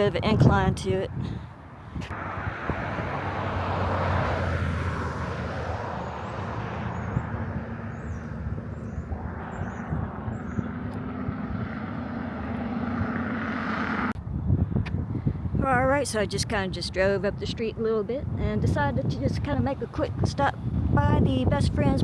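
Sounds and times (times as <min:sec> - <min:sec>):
engine drone: 0:02.1 - 0:14.2.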